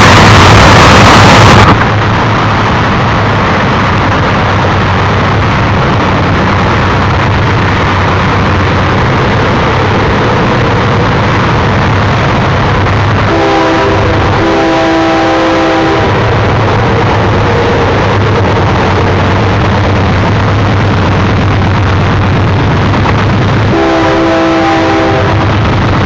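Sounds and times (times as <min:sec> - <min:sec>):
diesel locomotives rumbling: 0:00.0 - 0:26.0
locomotive air horn chord: 0:13.3 - 0:16.4, 0:23.7 - 0:25.6.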